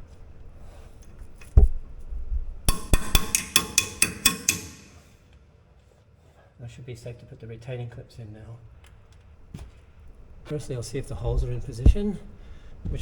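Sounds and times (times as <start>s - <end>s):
sharp metallic clicks with ringing: 2.7s - 5.1s.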